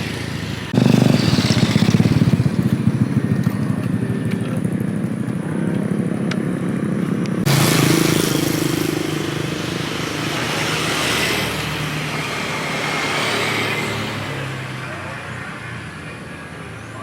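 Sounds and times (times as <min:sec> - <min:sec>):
small engine puttering: 0:00.8 - 0:05.2.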